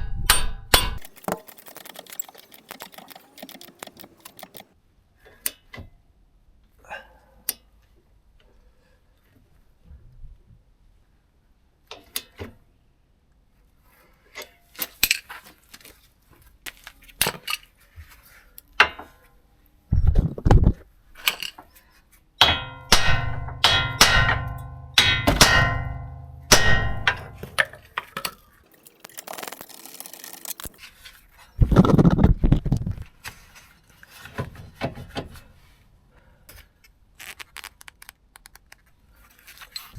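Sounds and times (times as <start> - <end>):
clicks: 1.0 - 4.8
ringing metal hits: 22.4 - 27.9
metal tools clanking: 26.4 - 30.8.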